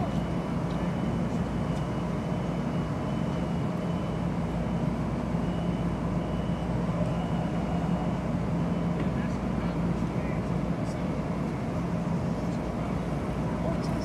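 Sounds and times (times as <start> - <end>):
train equipment low hum: 0.0 - 14.0.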